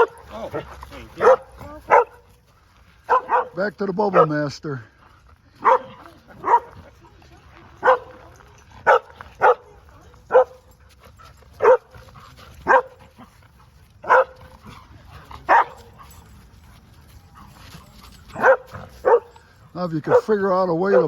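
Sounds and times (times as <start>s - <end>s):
dog barking: 0.0s - 0.3s, 1.2s - 2.3s, 3.1s - 4.4s, 5.6s - 6.8s, 7.8s - 8.2s, 8.8s - 10.6s, 11.6s - 12.0s, 12.6s - 13.0s, 14.0s - 14.7s, 15.4s - 16.2s, 18.3s - 19.4s, 20.0s - 21.0s.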